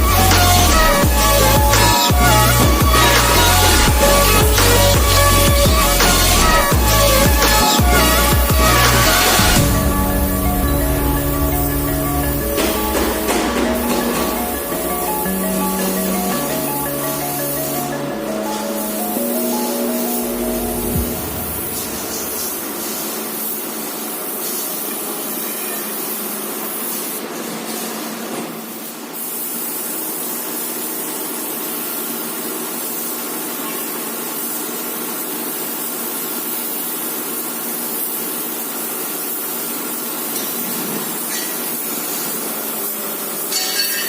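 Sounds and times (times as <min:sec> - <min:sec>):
spray gun hissing: 0:00.1 - 0:27.8, 0:28.7 - 0:43.7.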